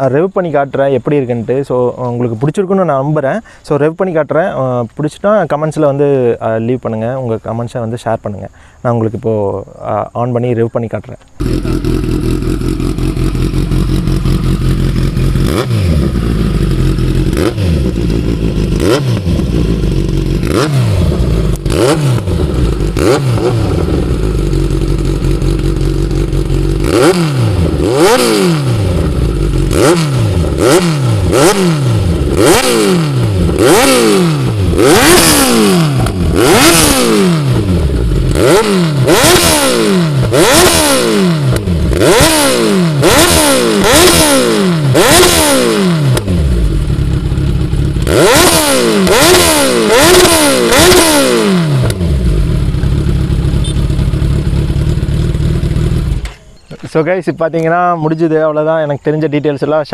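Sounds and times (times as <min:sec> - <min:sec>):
motorcycle engine idling and revving: 0:11.3 - 0:59.1.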